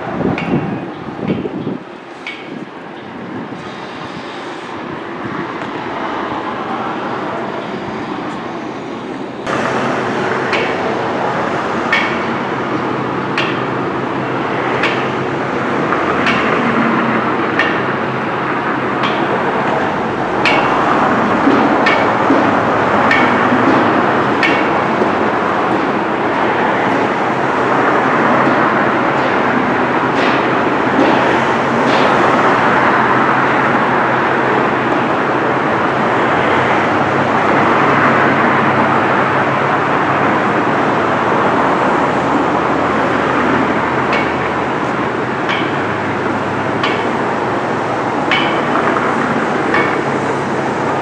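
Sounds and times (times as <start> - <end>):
machinery rumble: 0.0 - 51.0
metallic hammer strikes: 11.9 - 12.5, 20.4 - 24.7, 44.1 - 46.1, 46.8 - 47.2, 48.3 - 50.3.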